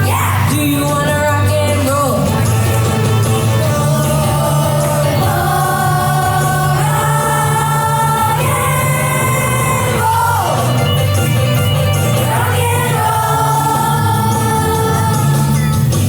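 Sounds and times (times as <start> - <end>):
steady bass line: 0.0 - 16.0
choir singing long notes: 2.6 - 16.0.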